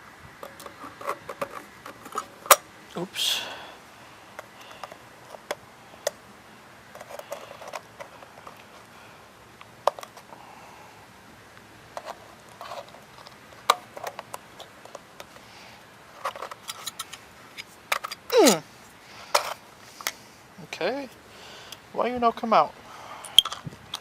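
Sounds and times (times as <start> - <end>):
metal oil filter clicks and scrapes: 0.4 - 2.6, 16.2 - 18.2, 23.3 - 24.0.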